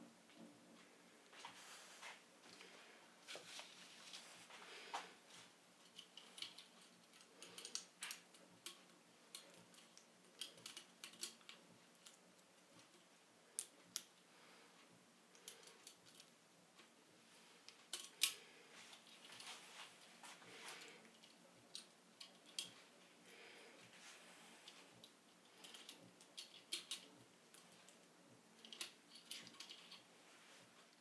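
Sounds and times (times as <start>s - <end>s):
small hard parts clicking: 5.8s - 14.2s, 15.3s - 16.4s, 17.6s - 19.5s, 20.5s - 23.6s, 24.6s - 30.1s.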